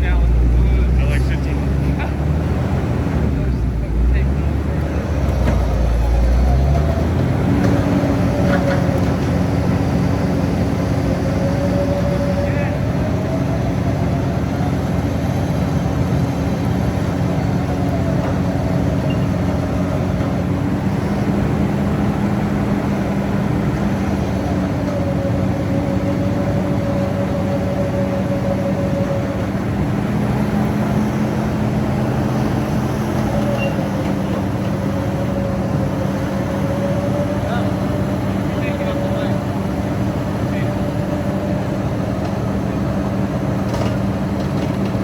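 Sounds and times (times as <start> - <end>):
faint whining tone: 8.6 - 20.4.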